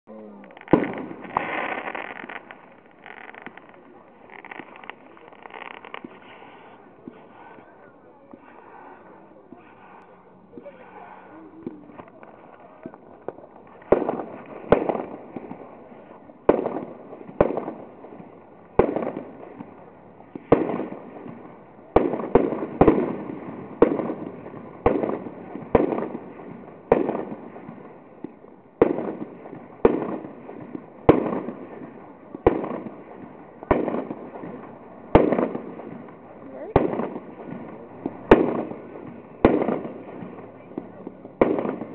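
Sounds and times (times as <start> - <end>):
fireworks bangs: 0.3 - 41.9.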